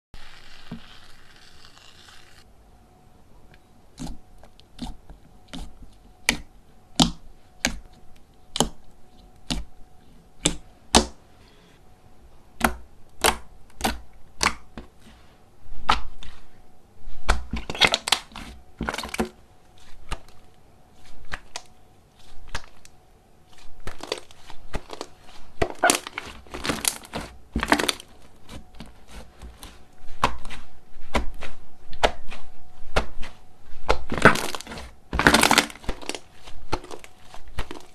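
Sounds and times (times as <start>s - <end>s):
slime popping and crackling: 23.8s - 28.2s, 33.9s - 37.9s.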